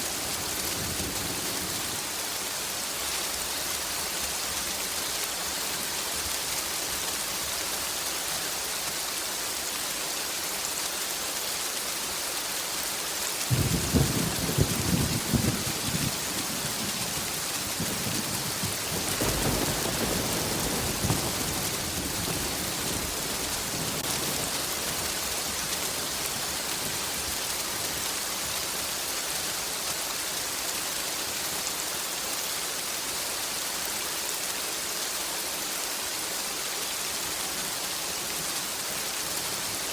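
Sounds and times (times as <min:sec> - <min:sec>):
heavy rain: 0:00.0 - 0:39.9
crackling thunder rumbling: 0:13.5 - 0:28.5.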